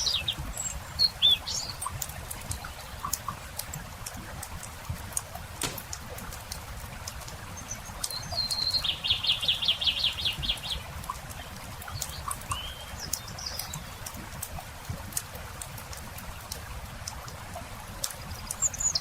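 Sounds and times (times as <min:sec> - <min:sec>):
songbird singing: 0:00.0 - 0:02.0, 0:07.5 - 0:14.1
campfire crackling: 0:01.8 - 0:07.5.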